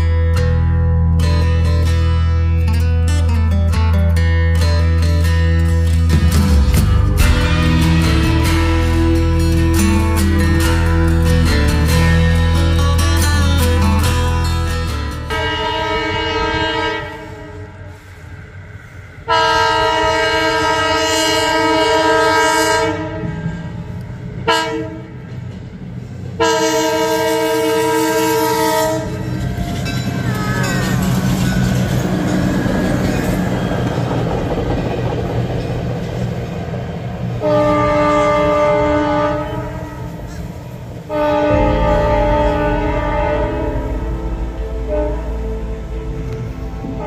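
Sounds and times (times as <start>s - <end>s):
train wheels rumbling on rails: 5.2s - 47.0s
train horn blasts: 15.2s - 18.1s, 19.2s - 25.2s, 26.4s - 29.6s, 37.4s - 47.0s.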